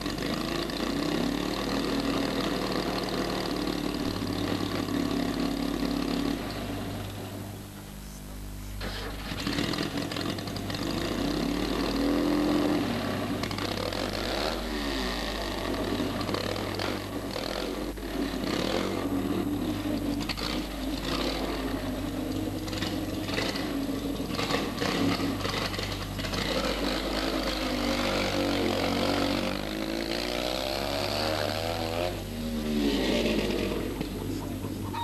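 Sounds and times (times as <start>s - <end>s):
small car engine revving: 0.0s - 35.0s.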